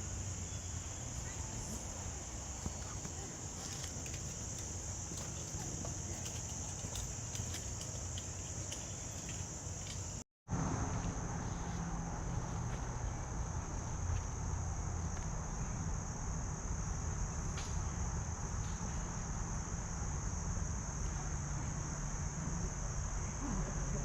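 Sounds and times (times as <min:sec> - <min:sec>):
insects trilling: 0:00.0 - 0:10.2.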